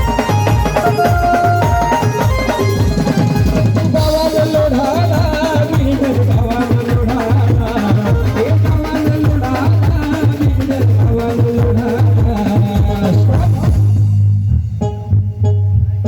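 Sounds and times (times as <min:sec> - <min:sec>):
wavering melody line: 0:00.0 - 0:04.2
heavy drum beat: 0:00.0 - 0:16.0.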